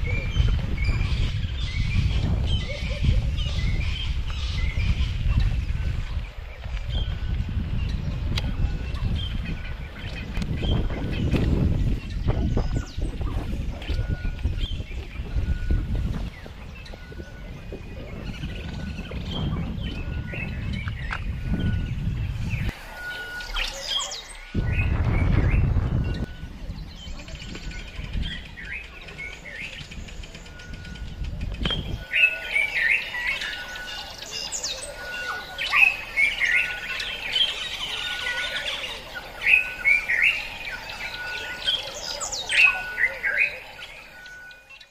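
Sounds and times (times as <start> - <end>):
low rumble: 0.0 - 32.1
birds chirping and calling: 0.0 - 44.9.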